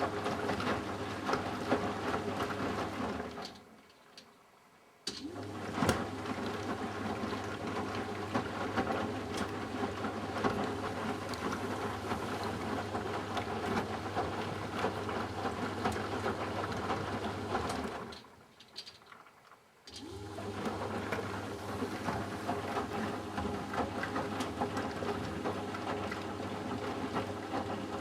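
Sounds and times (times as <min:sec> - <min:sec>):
washing machine drum humming: 0:00.0 - 0:03.6, 0:05.1 - 0:18.2, 0:19.9 - 0:28.0
water and laundry sloshing: 0:00.0 - 0:04.4, 0:05.2 - 0:28.0.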